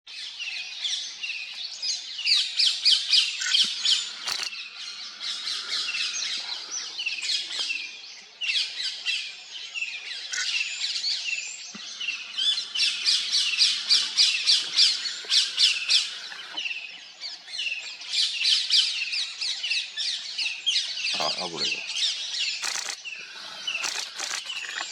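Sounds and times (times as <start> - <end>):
birds calling high sharp notes: 20.8 - 24.9.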